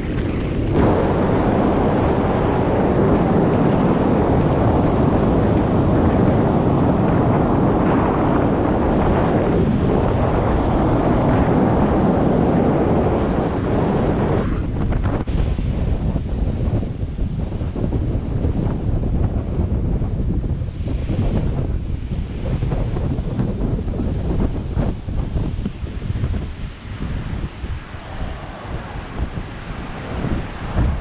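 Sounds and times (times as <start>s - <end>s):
choppy surf: 0.0s - 16.0s, 24.4s - 31.0s
wind buffeting microphone: 0.0s - 31.0s.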